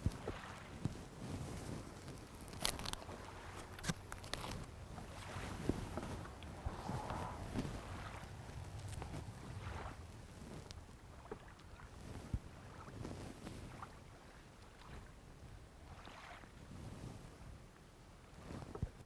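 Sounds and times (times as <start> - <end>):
wind rumble on microphone: 0.0 - 19.0
surf washing in: 4.6 - 15.1.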